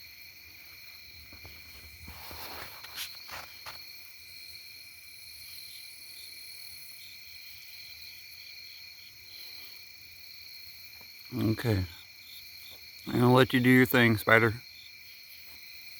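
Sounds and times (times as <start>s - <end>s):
insect chorus trilling: 0.0s - 15.9s
brief rustle: 1.3s - 3.8s.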